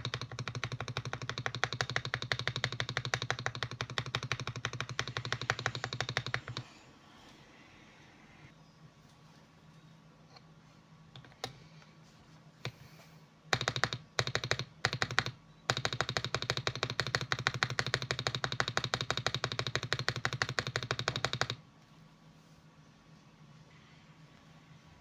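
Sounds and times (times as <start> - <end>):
mechanical keyboard typing: 0.0 - 6.7, 13.5 - 21.6.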